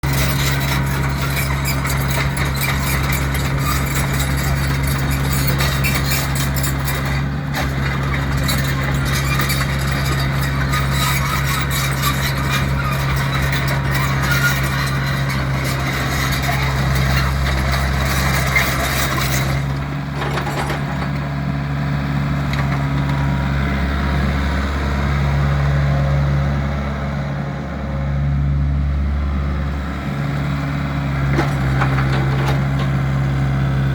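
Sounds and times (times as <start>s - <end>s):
busy rattling and clattering: 0.0s - 21.3s, 31.3s - 33.0s
excavator diesel engine running: 0.0s - 33.9s.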